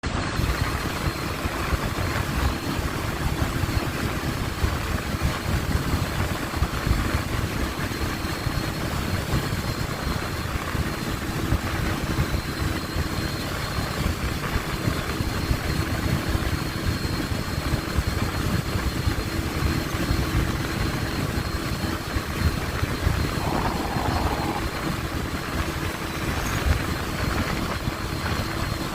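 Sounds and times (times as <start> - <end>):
wind noise on microphone: 20.2 - 28.9.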